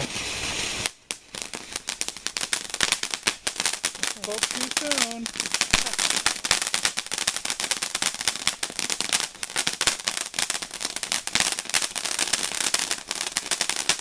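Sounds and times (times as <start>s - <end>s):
fountain firework crackling: 0.0s - 14.0s.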